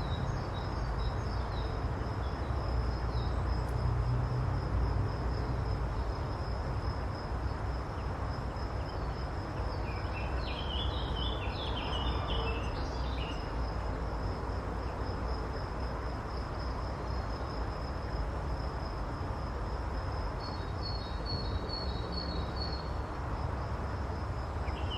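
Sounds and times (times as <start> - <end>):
cricket trilling: 0.0 - 24.9.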